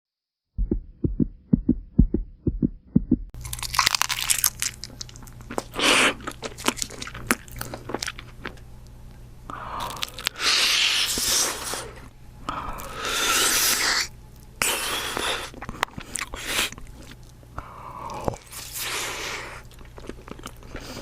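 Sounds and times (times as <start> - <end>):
low thumps: 0.6 - 3.4
steady low hum: 0.6 - 21.0
food crunching while chewed: 3.4 - 9.0, 9.6 - 11.9, 12.8 - 21.0.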